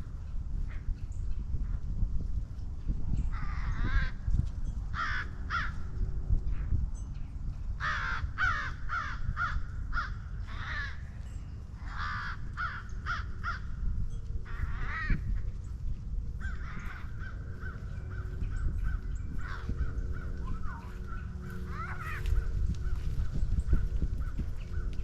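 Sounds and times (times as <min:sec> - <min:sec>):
low rumble: 0:00.0 - 0:25.0
crows cawing: 0:03.3 - 0:04.3, 0:04.9 - 0:06.0, 0:07.8 - 0:15.6, 0:16.4 - 0:25.0.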